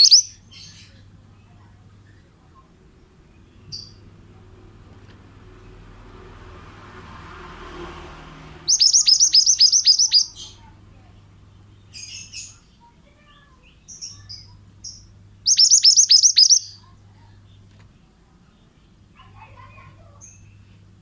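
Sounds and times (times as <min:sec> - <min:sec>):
bird singing high notes: 0:00.0 - 0:00.4, 0:08.7 - 0:10.6, 0:15.5 - 0:16.8.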